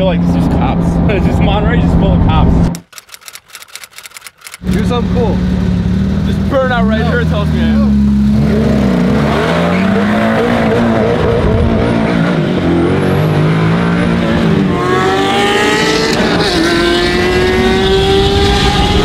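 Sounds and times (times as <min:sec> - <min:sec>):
sports car engine revving: 0:04.6 - 0:19.0.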